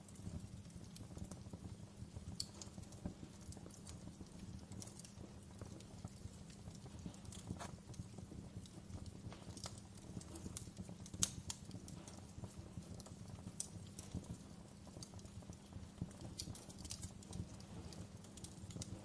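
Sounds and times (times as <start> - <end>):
low rumble of flames: 0.0 - 19.0
wood fire crackling: 0.0 - 19.0.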